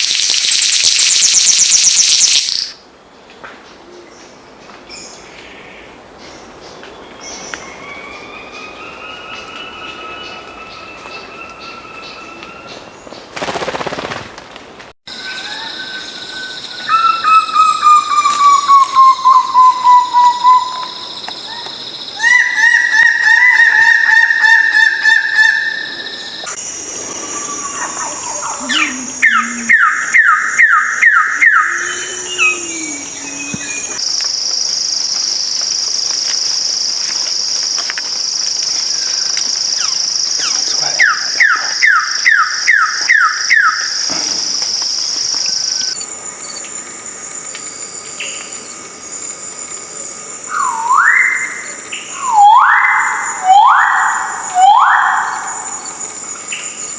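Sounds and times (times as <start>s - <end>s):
high insect trill: 0.0s - 2.8s, 15.1s - 22.3s, 25.0s - 56.9s
birds calling repeated notes: 16.8s - 34.0s, 39.0s - 46.0s.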